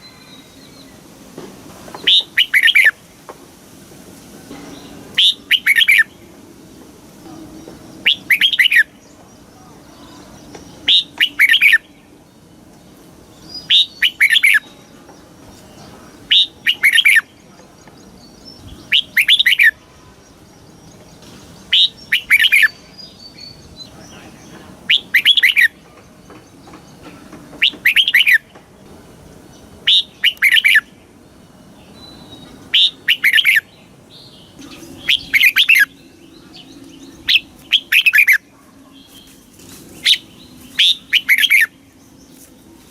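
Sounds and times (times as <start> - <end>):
bird singing whistled phrase: 5.2 - 6.1, 8.0 - 9.1, 10.8 - 11.9, 13.5 - 14.9, 16.3 - 17.3, 18.6 - 20.3, 21.7 - 23.7, 24.9 - 25.8, 29.9 - 30.9, 32.0 - 33.7, 34.6 - 38.4, 40.0 - 41.7.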